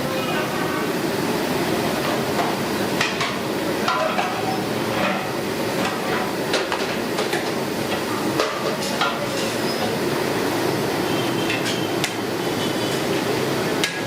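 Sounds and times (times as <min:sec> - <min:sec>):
street background noise: 0:00.0 - 0:14.0.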